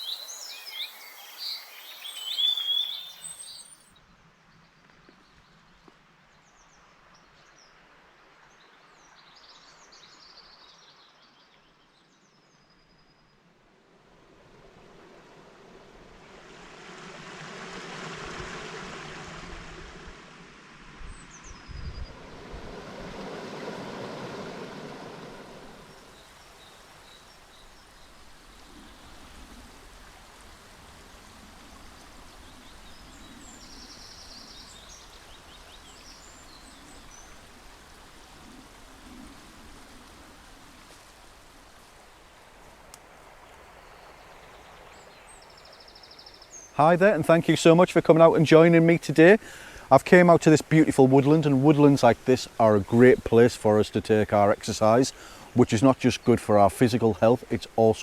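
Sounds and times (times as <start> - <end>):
stream flowing: 0.0 - 3.8, 13.7 - 58.0
faint bird chirps: 0.0 - 3.9.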